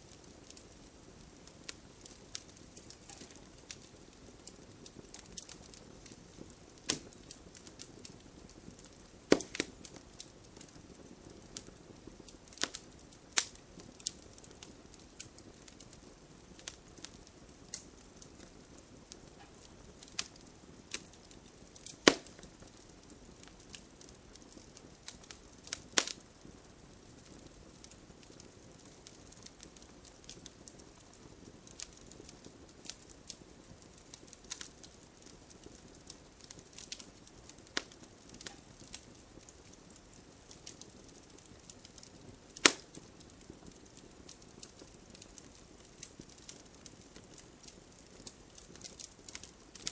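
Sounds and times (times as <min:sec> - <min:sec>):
faint steady hiss: 0:00.0 - 0:49.9
wood fire crackling: 0:00.0 - 0:49.9.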